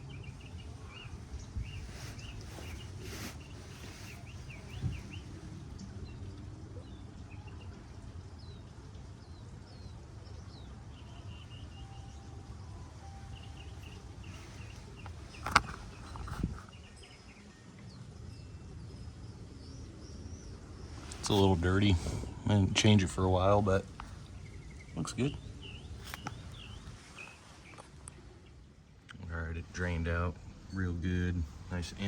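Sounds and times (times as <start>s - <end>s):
low steady background rumble: 0.0s - 32.0s
small birds chirping: 0.0s - 32.0s.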